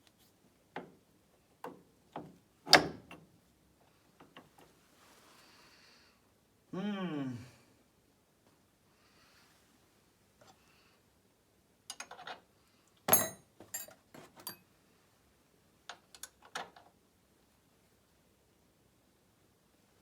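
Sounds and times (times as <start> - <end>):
metal tools clinking: 13.1 - 14.6.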